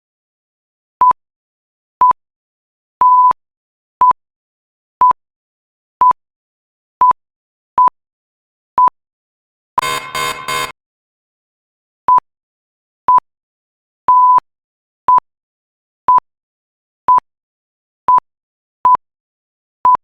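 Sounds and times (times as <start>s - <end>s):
electronic timer beeps: 9.8s - 10.7s.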